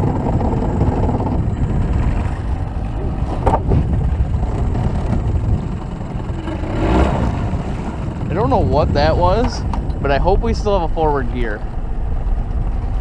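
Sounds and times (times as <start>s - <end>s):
boat motor low rumble: 0.0s - 13.0s
sharp clunk of rope on propeller: 3.3s - 3.8s.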